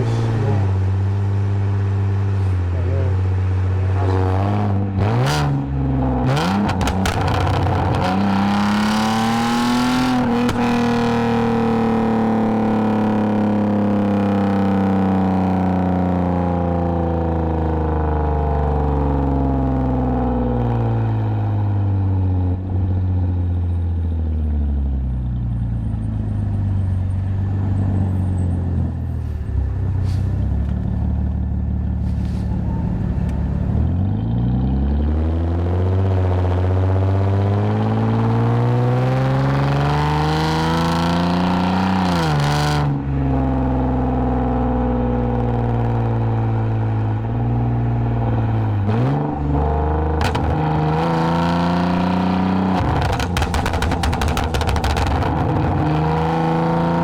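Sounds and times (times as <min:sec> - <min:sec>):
car engine through exhaust: 0:00.0 - 0:57.0.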